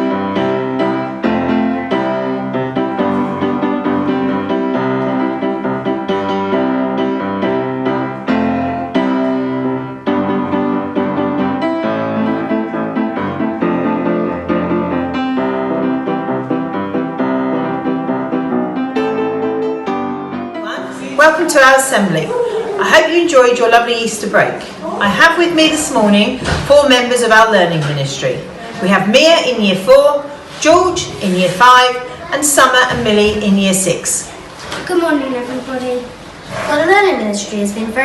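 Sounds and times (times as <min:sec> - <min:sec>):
piano music: 0:00.0 - 0:23.8.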